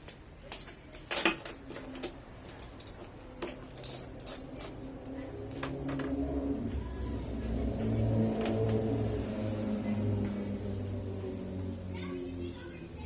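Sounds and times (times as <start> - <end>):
metal hand tools clinking: 0.9 - 5.1
low engine hum: 3.0 - 13.0.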